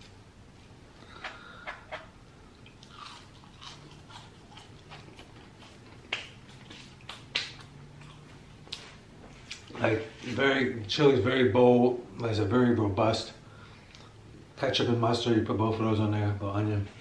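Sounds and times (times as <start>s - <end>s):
man chewing food: 0.0s - 9.8s.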